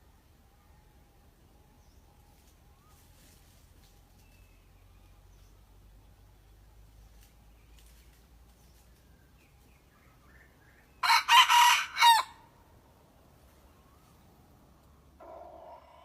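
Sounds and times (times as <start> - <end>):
rooster crowing: 11.0 - 12.5.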